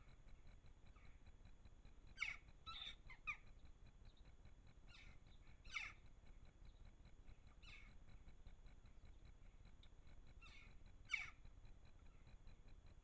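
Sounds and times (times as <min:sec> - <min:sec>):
rough bird calls: 0:02.2 - 0:03.5, 0:04.9 - 0:06.0, 0:07.6 - 0:08.0, 0:10.4 - 0:11.4.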